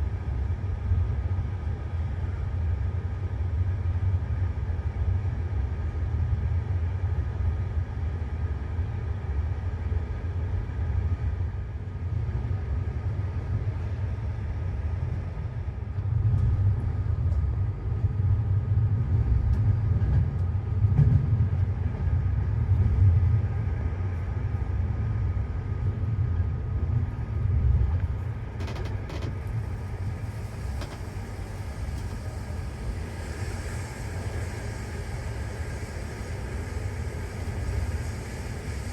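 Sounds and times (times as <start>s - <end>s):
passenger train rumble: 0.0s - 38.9s
faint clicks: 30.5s - 31.2s.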